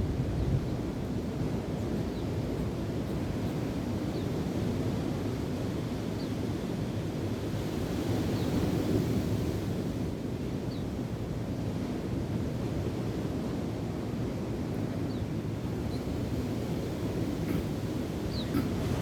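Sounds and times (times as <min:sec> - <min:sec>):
waves: 0:01.0 - 0:19.0.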